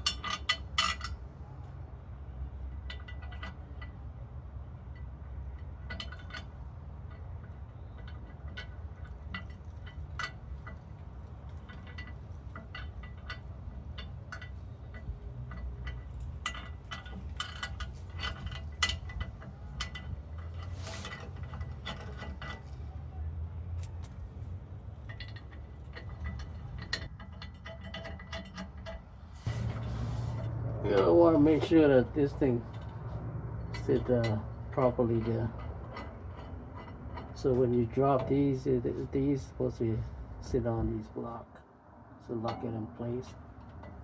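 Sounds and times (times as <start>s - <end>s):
metal tools clinking: 0.0s - 1.2s, 4.9s - 23.1s, 23.7s - 29.0s, 30.8s - 38.7s.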